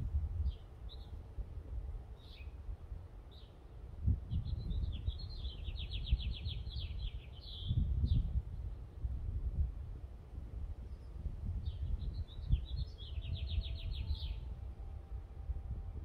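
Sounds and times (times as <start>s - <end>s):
low rumbling noise: 0.0s - 16.0s
small birds chirping: 0.4s - 1.2s, 2.2s - 2.6s, 3.3s - 9.0s, 10.8s - 14.5s.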